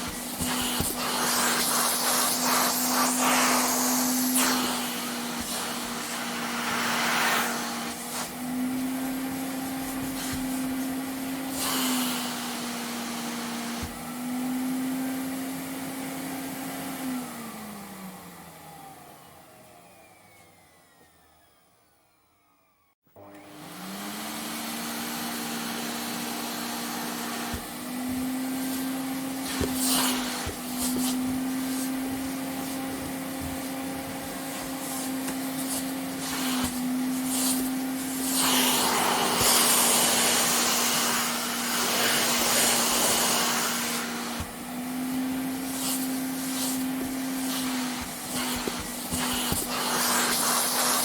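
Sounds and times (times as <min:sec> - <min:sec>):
vacuum cleaner running: 0:00.0 - 0:51.0
vacuum motor winding down: 0:17.0 - 0:51.0.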